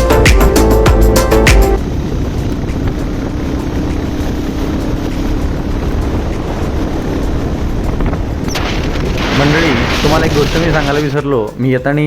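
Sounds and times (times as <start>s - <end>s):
motorcycle engine drone: 0.1s - 11.1s
wind rush on microphone: 1.7s - 11.1s.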